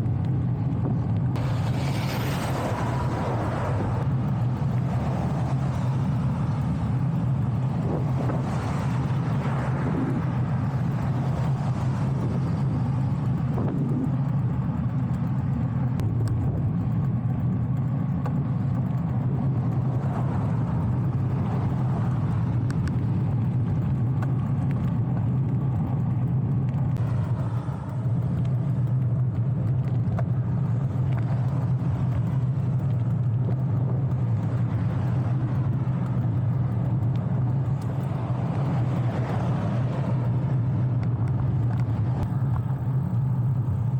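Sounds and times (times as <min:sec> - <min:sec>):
road noise from bicycle: 0:00.0 - 0:43.9
wind noise: 0:00.0 - 0:43.9.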